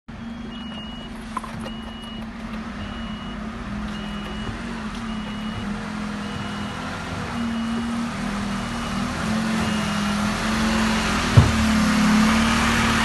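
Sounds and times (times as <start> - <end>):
reversing alarm beeping: 0.1 - 11.3, 12.0 - 13.0
truck engine running: 0.1 - 13.0.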